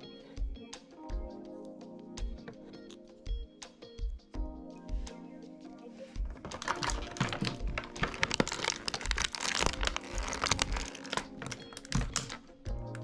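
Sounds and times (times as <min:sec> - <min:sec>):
plastic clicking and crinkling: 0:06.3 - 0:13.0
background music with bass beat: 0:09.1 - 0:13.0.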